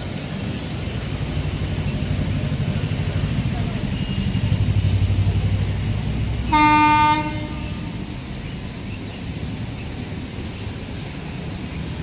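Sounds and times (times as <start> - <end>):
train rumbling: 0.0 - 12.0
train horn blast: 6.4 - 8.2.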